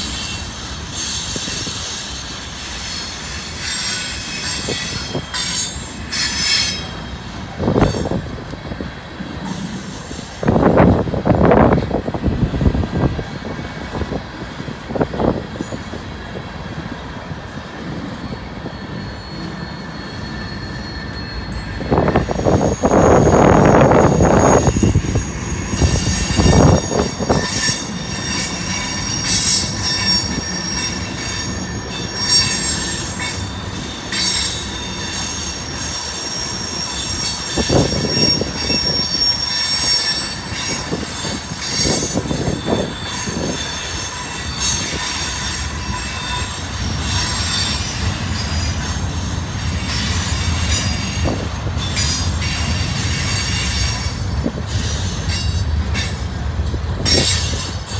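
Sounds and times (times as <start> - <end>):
high steel wheel squeal: 0.0 - 8.4, 15.2 - 16.2, 17.8 - 57.9
freight train cars rolling past: 0.0 - 57.9.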